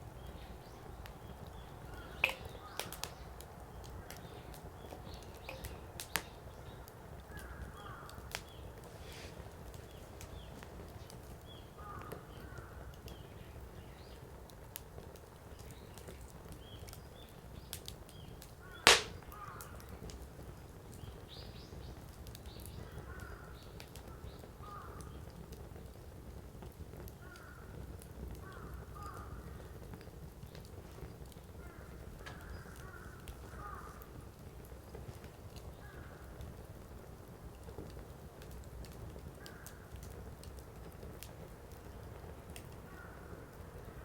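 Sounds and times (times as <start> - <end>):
firewood burning and crackling: 0.0 - 44.0
loud fire pop: 1.9 - 3.2, 18.8 - 19.6.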